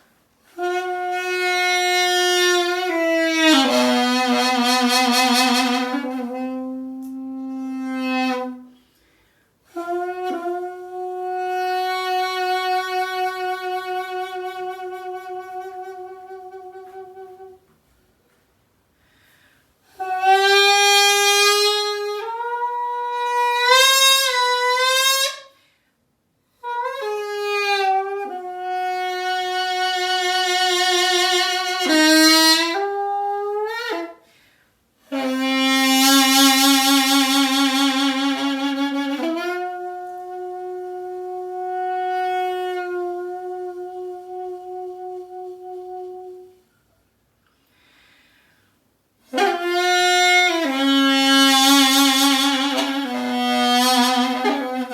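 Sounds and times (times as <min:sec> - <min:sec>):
double-reed pipe improvising: 0:00.4 - 0:09.0, 0:49.2 - 0:54.9.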